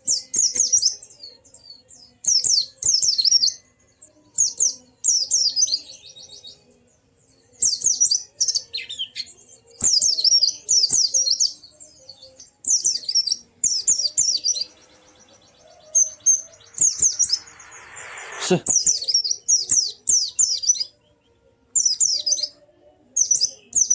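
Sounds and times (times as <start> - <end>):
bird high-pitched chirping: 7.6 - 21.0.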